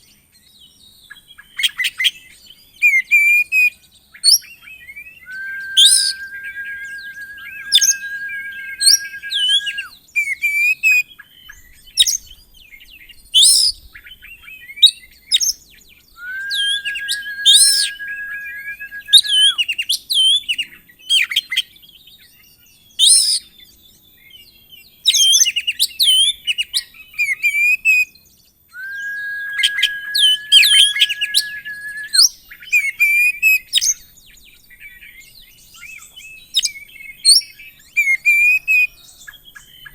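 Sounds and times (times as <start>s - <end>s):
bird singing loudly: 5.3s - 9.9s, 16.2s - 19.6s, 28.8s - 32.3s
long steady whistle: 5.3s - 9.9s, 16.2s - 19.6s, 28.8s - 32.3s.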